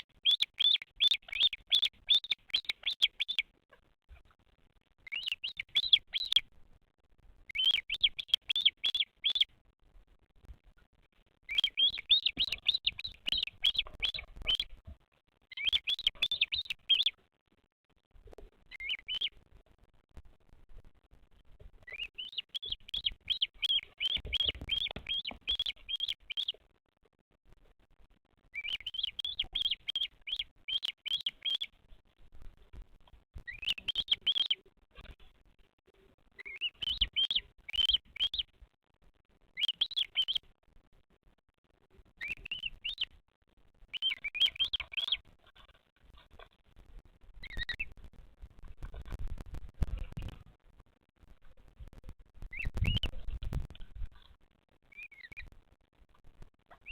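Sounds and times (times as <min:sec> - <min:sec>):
bird high chirps: 0:00.0 - 0:03.5, 0:05.0 - 0:06.4, 0:07.5 - 0:09.5, 0:11.5 - 0:14.8, 0:15.5 - 0:17.2, 0:18.6 - 0:19.4, 0:21.8 - 0:26.6, 0:28.5 - 0:31.8, 0:33.4 - 0:34.6, 0:36.4 - 0:38.5, 0:39.6 - 0:40.4, 0:42.2 - 0:43.1, 0:43.9 - 0:45.2, 0:47.4 - 0:47.9, 0:52.5 - 0:53.2, 0:54.9 - 0:55.5.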